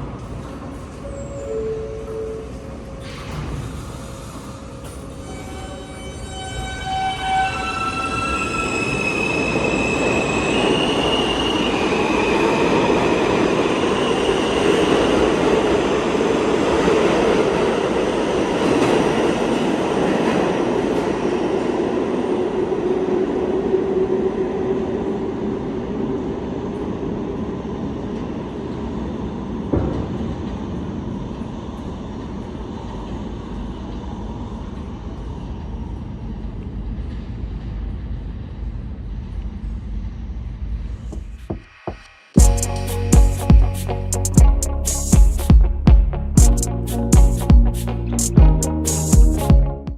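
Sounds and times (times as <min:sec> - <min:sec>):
subway train rumbling: 0:00.0 - 0:49.9
train wheels squealing: 0:00.2 - 0:15.4.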